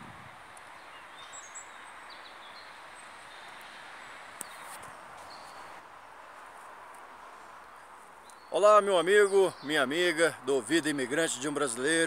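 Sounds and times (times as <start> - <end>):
faint outdoor hiss: 0.0 - 12.0
small birds chirping: 0.5 - 5.8, 7.6 - 10.2.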